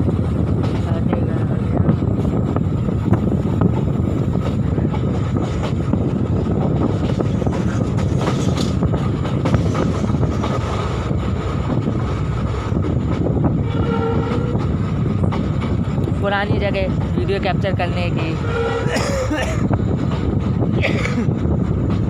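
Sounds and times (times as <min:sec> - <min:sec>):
train rumbling on track: 0:00.0 - 0:22.0
wheels clicking over rail joints: 0:03.0 - 0:17.6.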